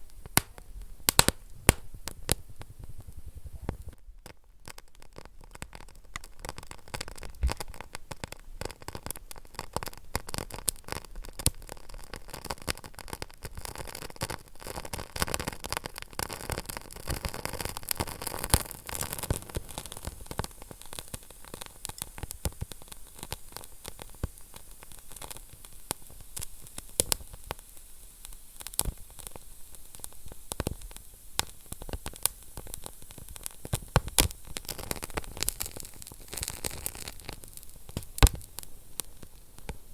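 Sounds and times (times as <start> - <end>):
fire hiss: 0.0 - 4.0, 6.2 - 39.9
wood fire crackling: 0.0 - 39.9
sharp loud pops: 0.4 - 2.2.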